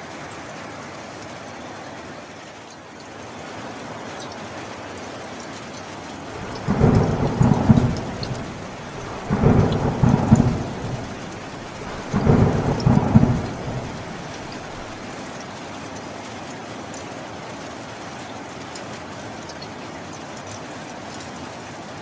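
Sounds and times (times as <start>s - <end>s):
steady rain: 0.0s - 22.0s
thunder rumbling: 6.3s - 15.0s.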